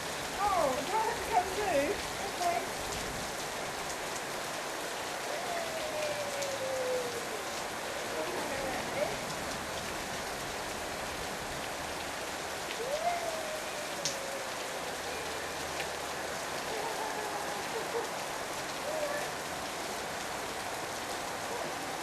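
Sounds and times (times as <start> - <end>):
heavy rain hiss: 0.0 - 22.0
person calling out: 12.8 - 14.6.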